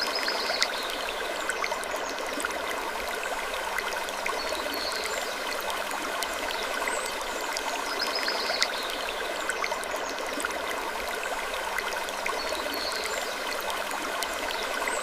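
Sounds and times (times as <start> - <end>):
stream-like rushing: 0.0 - 15.0.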